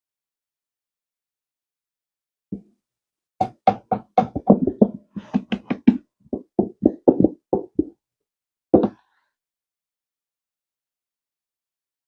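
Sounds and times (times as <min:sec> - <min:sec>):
container and utensil knocking: 0:03.4 - 0:07.9.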